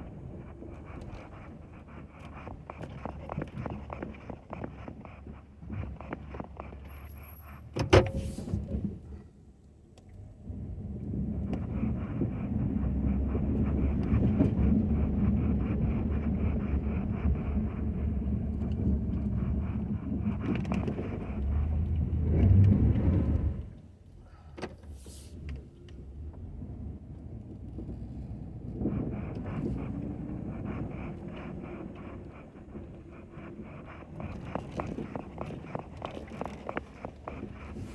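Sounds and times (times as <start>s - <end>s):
pickup truck engine rumble: 10.2s - 37.9s.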